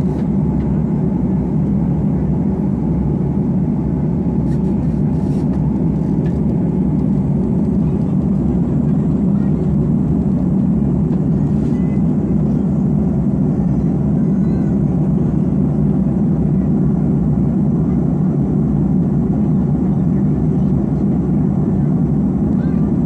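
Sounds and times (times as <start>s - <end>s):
airliner cabin rumble: 0.0s - 23.0s.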